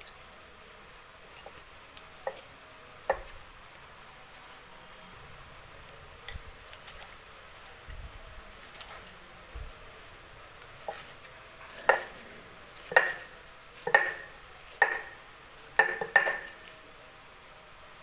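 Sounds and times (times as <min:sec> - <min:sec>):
kitchen utensils clinking: 0:12.8 - 0:15.2, 0:15.8 - 0:16.7.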